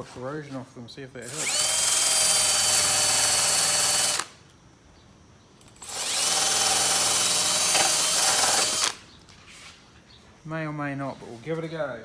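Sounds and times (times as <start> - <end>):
power drill whining on metal: 1.2 - 4.4, 5.6 - 9.0.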